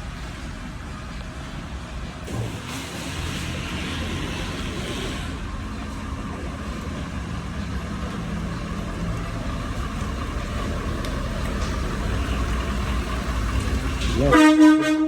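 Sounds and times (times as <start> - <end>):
tow truck engine running: 0.0 - 15.0
road or air noise hiss: 1.4 - 6.1.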